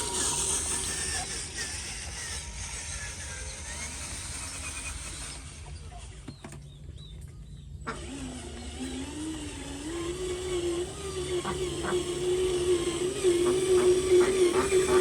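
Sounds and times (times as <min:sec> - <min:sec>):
small electric motor whining: 0:00.0 - 0:06.6, 0:07.6 - 0:15.0.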